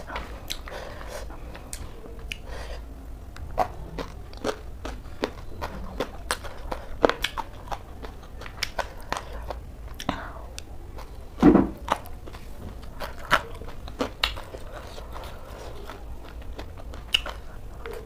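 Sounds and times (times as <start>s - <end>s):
chewing crunchy cabbage salad: 0.0s - 18.0s.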